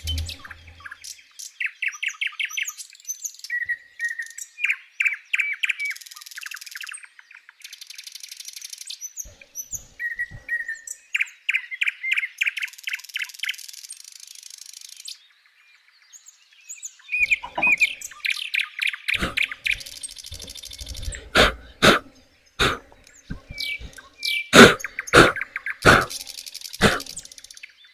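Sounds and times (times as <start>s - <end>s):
low knocks: 0.0s - 0.9s
small birds chirping: 0.0s - 27.9s.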